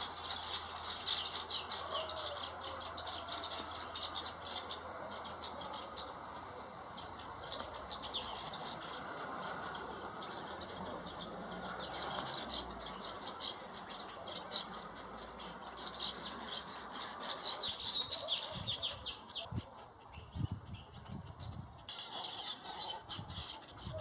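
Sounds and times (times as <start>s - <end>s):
steady background hiss: 0.0s - 18.1s
birds chirping: 0.0s - 24.0s.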